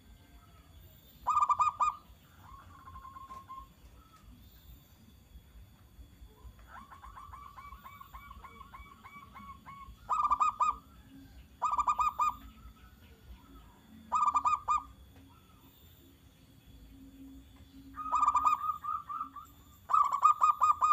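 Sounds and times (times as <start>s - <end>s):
dove cooing: 1.2s - 4.3s, 6.4s - 15.8s, 17.8s - 20.9s.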